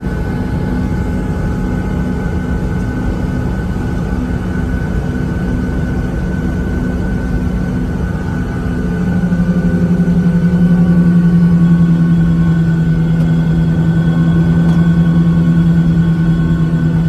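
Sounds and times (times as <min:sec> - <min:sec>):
jet engine cabin noise: 0:00.0 - 0:17.0.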